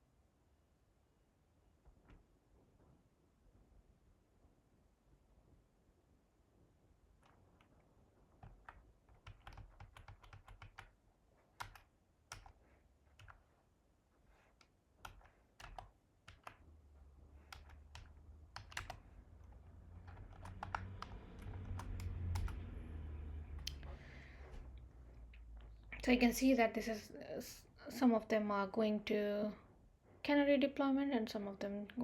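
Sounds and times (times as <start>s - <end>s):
typing on computer keyboard: 7.2s - 13.5s, 14.6s - 16.7s, 17.4s - 22.6s
low hum: 16.6s - 26.1s.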